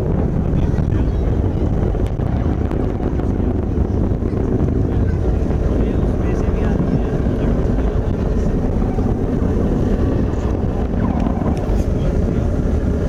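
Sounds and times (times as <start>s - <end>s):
rocket engine rumble: 0.0s - 13.0s.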